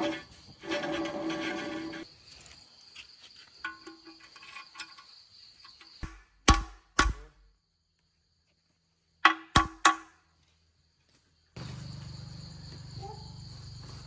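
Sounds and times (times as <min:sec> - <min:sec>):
sharp metallic knocks: 0:06.0 - 0:07.4, 0:09.2 - 0:10.1.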